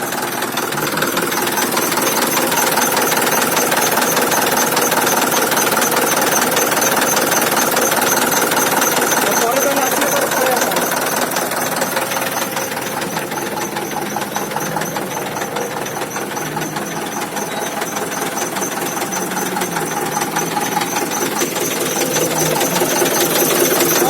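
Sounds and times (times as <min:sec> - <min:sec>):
truck engine clattering: 0:00.0 - 0:24.0.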